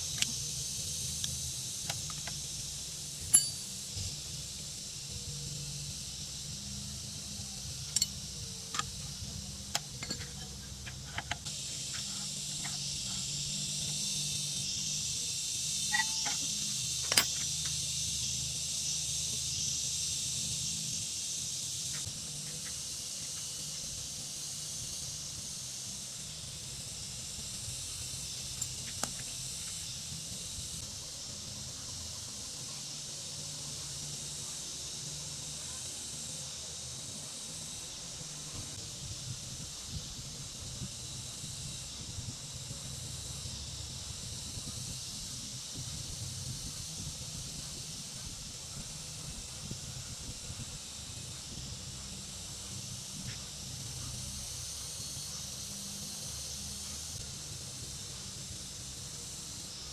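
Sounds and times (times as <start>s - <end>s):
steady hiss: 0.0s - 59.9s
sharp clicks and knocks: 9.7s - 13.3s, 15.9s - 17.8s.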